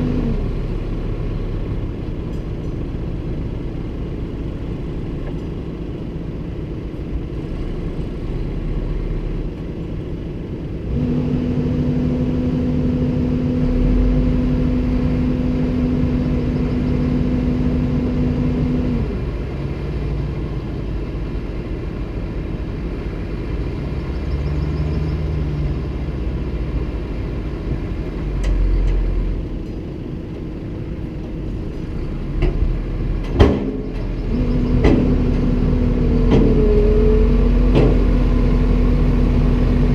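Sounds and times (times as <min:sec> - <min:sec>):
excavator diesel engine rumbling: 0:00.0 - 0:39.9
loud droning tone: 0:10.8 - 0:19.2
sharp knocks: 0:33.3 - 0:34.0.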